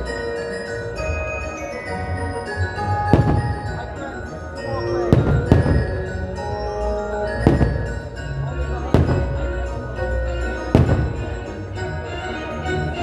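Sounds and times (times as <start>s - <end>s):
chiming mallet percussion: 0.0s - 13.0s
christmas show music: 0.0s - 13.0s
firework shells bursting: 3.1s - 3.8s, 5.1s - 6.2s, 7.3s - 8.0s, 10.7s - 11.4s.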